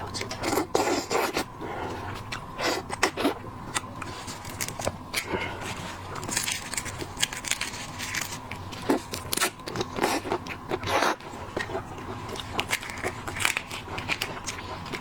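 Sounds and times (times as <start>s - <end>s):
shellfish shells cracking: 6.2s - 10.0s, 12.3s - 15.0s.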